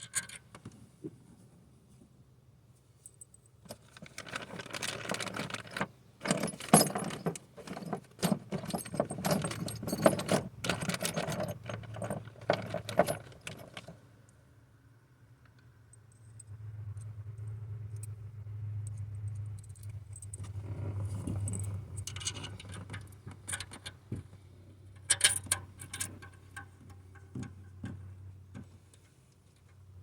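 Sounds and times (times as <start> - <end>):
metal parts and tools jangling: 3.0 - 14.0, 18.9 - 24.0, 25.0 - 26.7.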